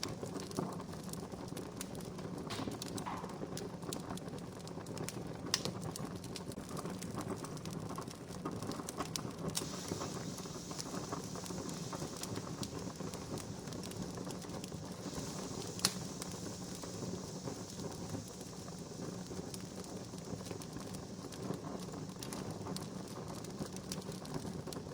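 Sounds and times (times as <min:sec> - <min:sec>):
campfire crackling and popping: 0:00.0 - 0:24.9.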